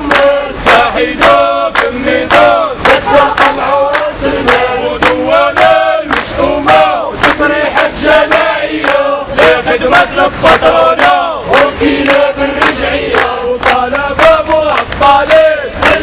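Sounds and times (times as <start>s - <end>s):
crowd chanting slogans: 0.0s - 16.0s.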